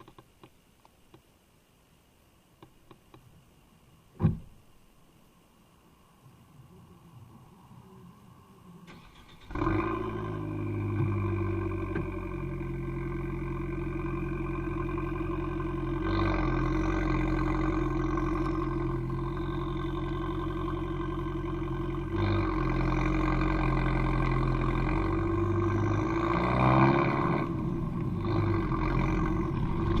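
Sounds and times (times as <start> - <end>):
car engine idling: 6.5 - 30.0.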